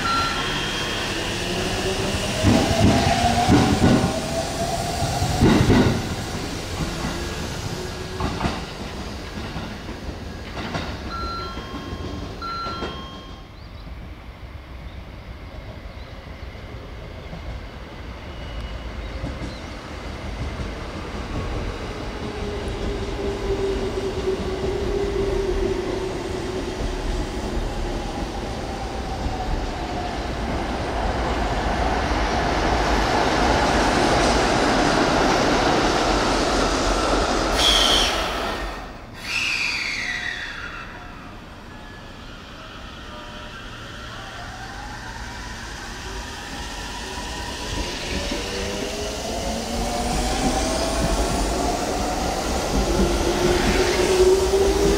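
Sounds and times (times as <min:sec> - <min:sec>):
short high beeps: 0:00.0 - 0:00.9, 0:11.1 - 0:13.5.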